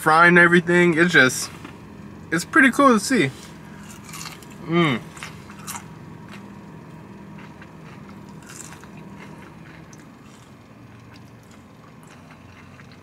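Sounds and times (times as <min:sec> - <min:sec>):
steady low hum: 0:00.0 - 0:13.0
person chewing crispy chicken: 0:03.4 - 0:13.0.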